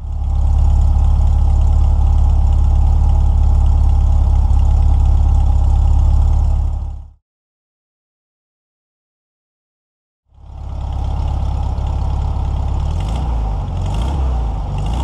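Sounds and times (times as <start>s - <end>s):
car engine idling: 0.0s - 7.2s, 10.4s - 15.0s.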